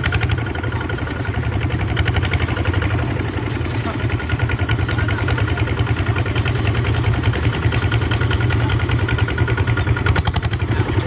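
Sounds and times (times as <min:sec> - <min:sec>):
tractor engine chugging: 0:00.0 - 0:11.0.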